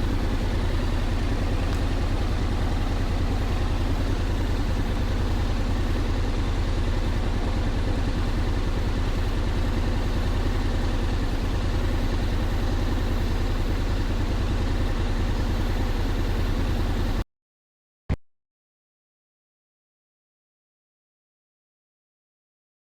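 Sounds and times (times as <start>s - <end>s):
scooter engine rumbling: 0.0s - 17.2s.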